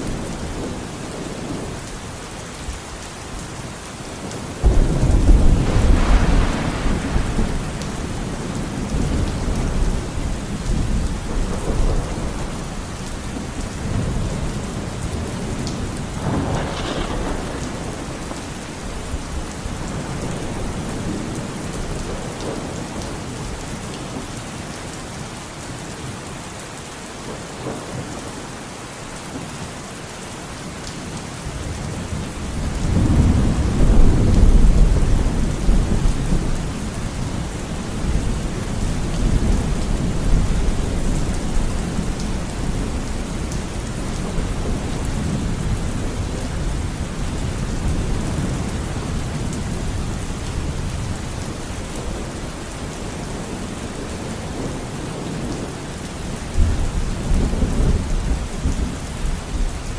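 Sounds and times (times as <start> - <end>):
steady rain: 0.0 - 59.9
thunder rumbling: 4.2 - 23.5.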